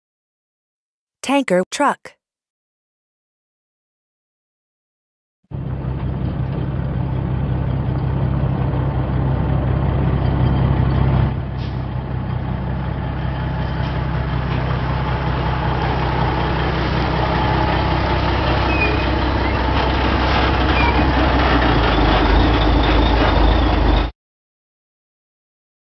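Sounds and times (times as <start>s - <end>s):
truck engine running: 5.5s - 24.1s.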